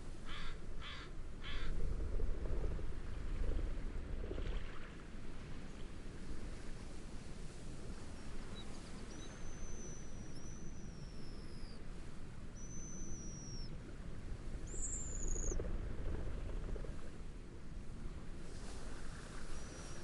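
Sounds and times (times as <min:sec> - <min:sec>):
waves: 0:00.0 - 0:20.0
wind: 0:00.0 - 0:20.0
bird high whistles: 0:12.6 - 0:13.7.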